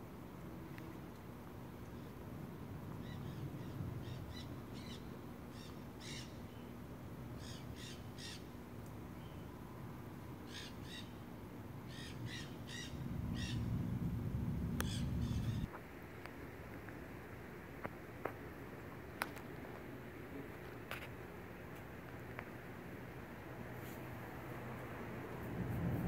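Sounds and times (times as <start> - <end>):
bird calling: 3.0 - 6.8, 7.4 - 8.6, 10.4 - 13.8, 14.8 - 15.8
low rumble: 13.0 - 15.7.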